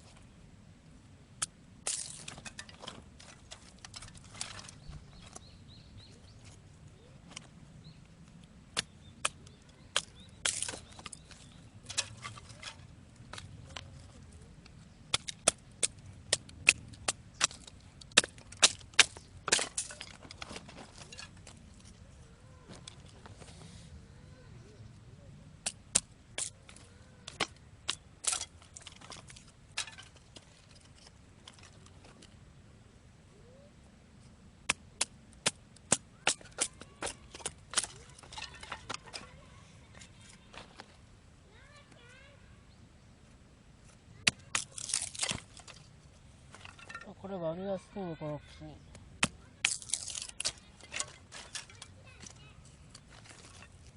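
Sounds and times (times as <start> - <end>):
dry wood snapping: 1.4 - 5.4, 8.2 - 21.9, 25.6 - 32.3, 34.7 - 39.3, 44.2 - 45.9, 48.9 - 53.9
wood splitting crackle: 1.4 - 5.4, 8.7 - 14.0, 14.6 - 21.9, 25.6 - 32.3, 34.7 - 39.4, 44.2 - 47.3, 49.2 - 53.9.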